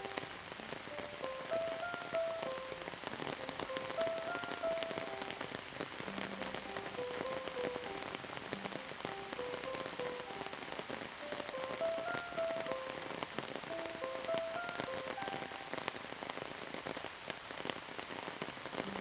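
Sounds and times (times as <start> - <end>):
soft slow melody: 0.0 - 16.4
rain drops pattering: 0.0 - 19.0.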